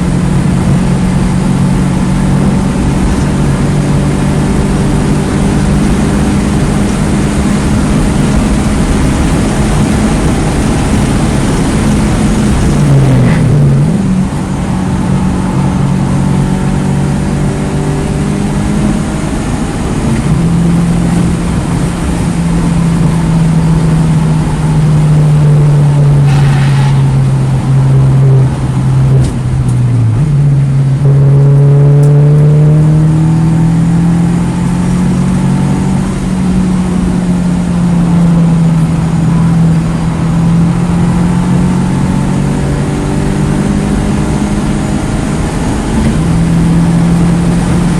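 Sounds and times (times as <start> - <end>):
wind noise: 0.0 - 31.1
car engine revving through gears: 0.0 - 47.9.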